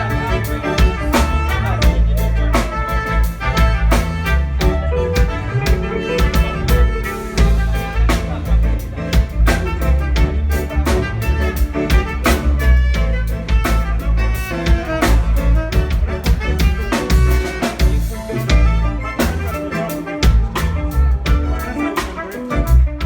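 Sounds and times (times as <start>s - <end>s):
bass line: 0.0s - 23.0s
drum kit: 0.0s - 23.0s
pitched instruments: 0.0s - 23.0s.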